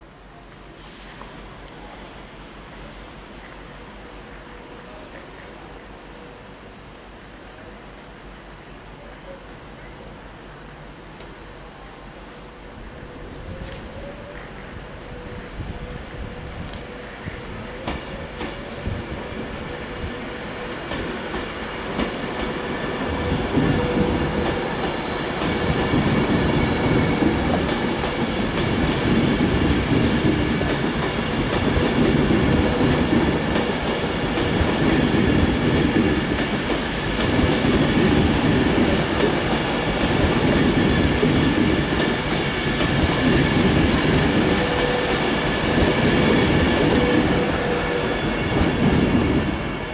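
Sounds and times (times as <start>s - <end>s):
train wheels rumbling and clattering: 12.8s - 49.9s.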